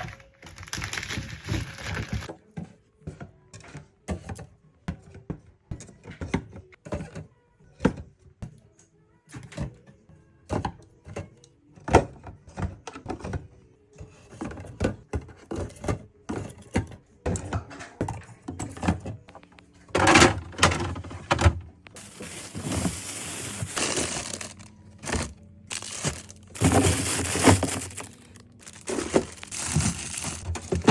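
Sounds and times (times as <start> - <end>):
plastic packaging crinkling: 0.0 - 2.3, 22.0 - 30.9
items knocking on surface: 19.9 - 30.9.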